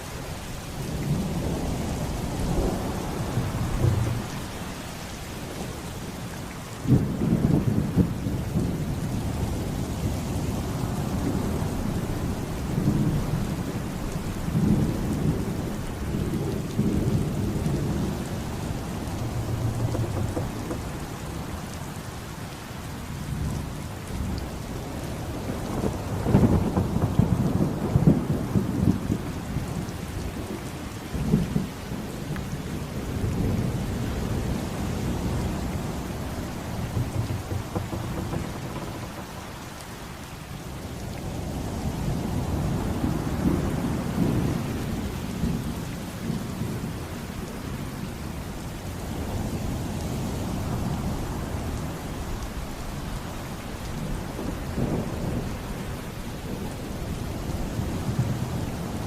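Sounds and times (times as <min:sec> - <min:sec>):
steady rain: 0:00.0 - 0:59.0
rolling thunder: 0:00.8 - 0:06.2, 0:06.9 - 0:22.3, 0:25.2 - 0:29.9, 0:31.2 - 0:45.8, 0:54.0 - 0:59.0.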